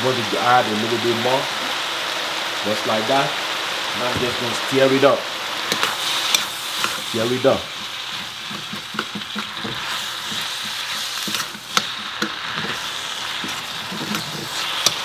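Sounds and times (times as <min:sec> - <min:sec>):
vegetables sizzling in hot oil: 0:00.0 - 0:15.0
utensil scraping a pan: 0:05.7 - 0:15.0.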